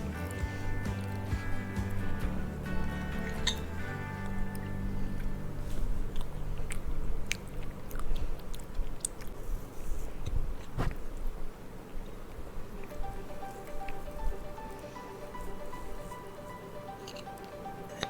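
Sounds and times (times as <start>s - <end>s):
chewing soft food: 0.0s - 18.0s
wet mouth clicks: 6.1s - 9.4s.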